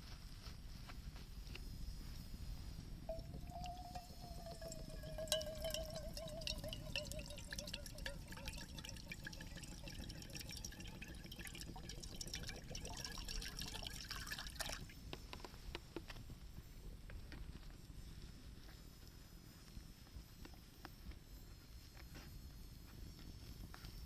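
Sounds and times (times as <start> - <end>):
faint wavering whine: 0.0 - 24.0
wood campfire crackling: 2.9 - 15.0
liquid bubbling and dripping: 3.1 - 15.2.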